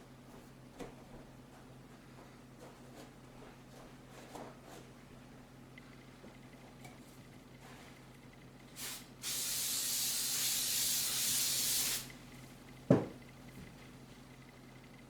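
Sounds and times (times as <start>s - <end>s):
aerosol spray can hissing: 8.8s - 12.1s.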